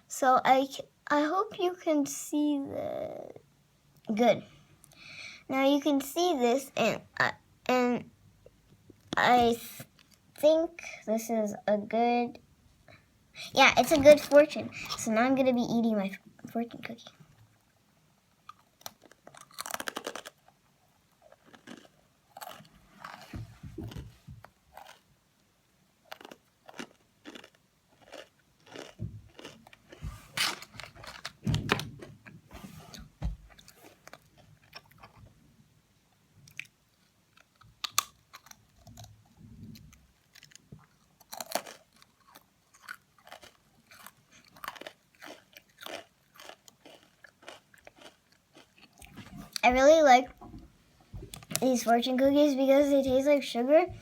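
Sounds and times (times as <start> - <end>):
crisp cookie crunching: 18.4 - 23.4, 24.7 - 25.1, 26.0 - 31.4, 33.5 - 35.2, 36.4 - 49.8.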